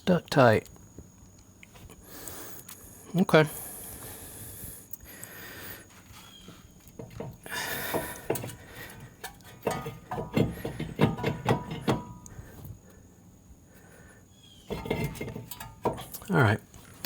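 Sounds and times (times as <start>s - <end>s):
brake caliper scraping: 5.9s - 12.8s, 14.4s - 17.0s.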